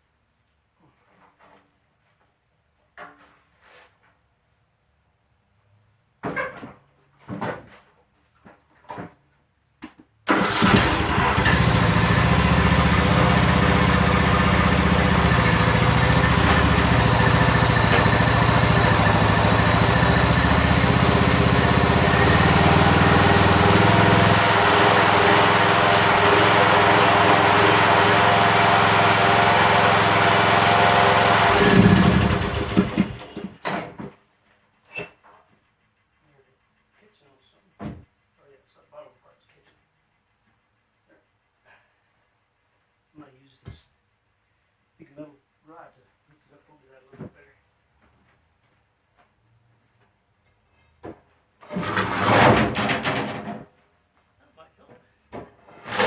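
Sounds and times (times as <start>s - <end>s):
riding lawn mower engine: 10.3s - 33.4s.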